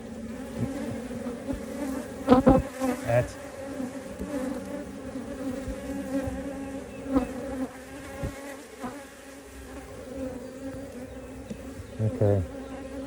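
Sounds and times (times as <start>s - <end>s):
honeybees humming: 0.0s - 13.0s.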